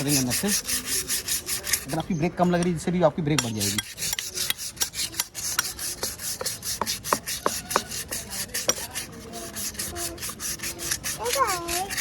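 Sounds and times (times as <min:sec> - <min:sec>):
sandpaper scraping metal drum: 0:00.0 - 0:12.0.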